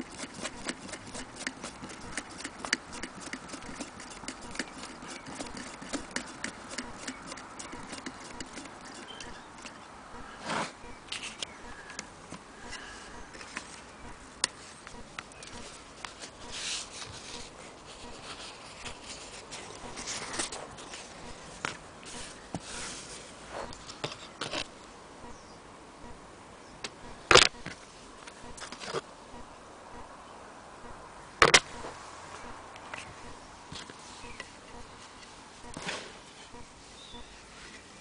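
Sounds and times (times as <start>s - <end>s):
objects clicking and scraping: 0.0s - 9.8s.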